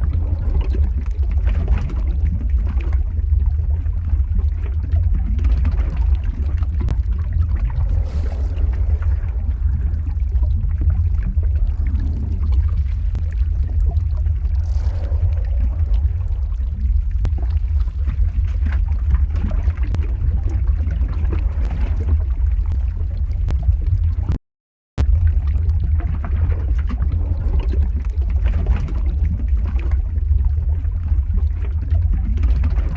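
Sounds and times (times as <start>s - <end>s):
deep rumble: 0.0s - 24.4s, 25.0s - 32.9s
faint crackles: 0.0s - 24.4s.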